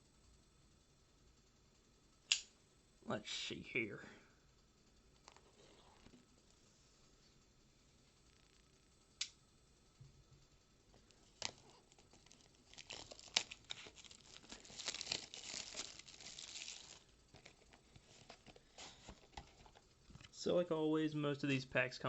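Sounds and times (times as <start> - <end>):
packaging crackling and tearing: 11.1 - 20.3.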